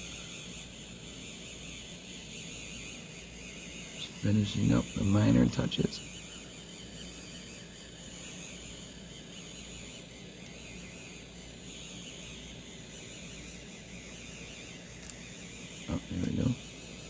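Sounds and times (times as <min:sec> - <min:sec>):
small motor whirring: 0:00.0 - 0:17.0.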